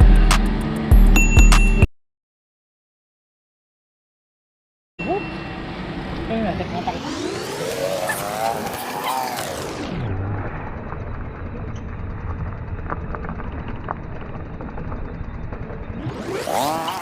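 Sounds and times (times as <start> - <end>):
muffled road noise rumble: 5.0 - 17.0
passing vehicle engine: 5.0 - 17.0.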